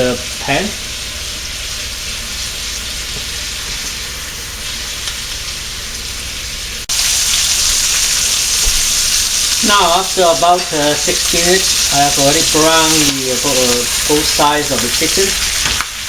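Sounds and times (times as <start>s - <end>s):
chicken skin sizzling in oil: 0.0s - 16.0s.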